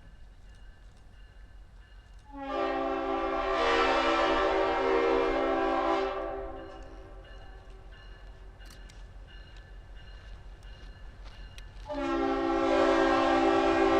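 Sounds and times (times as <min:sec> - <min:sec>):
locomotive chime horn blast: 0:02.2 - 0:07.8, 0:11.8 - 0:13.9.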